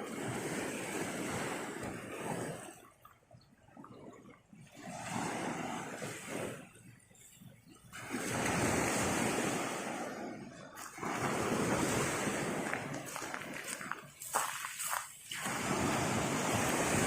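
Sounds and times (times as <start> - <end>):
surf washing onto beach: 8.0 - 17.0.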